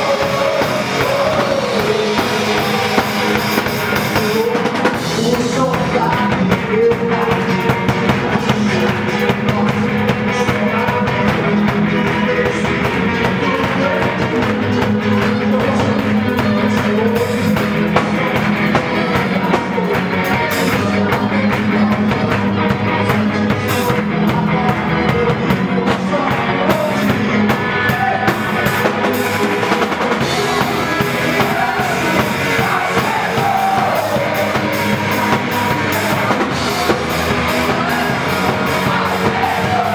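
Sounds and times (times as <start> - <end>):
drum kit: 0.0 - 39.9
guitar: 0.0 - 39.9
person singing: 0.0 - 39.9.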